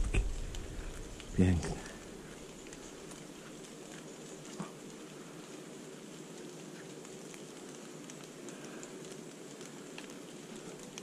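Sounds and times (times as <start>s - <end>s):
light rain on leaf litter: 0.0s - 11.0s
small drop ticks: 2.4s - 11.0s.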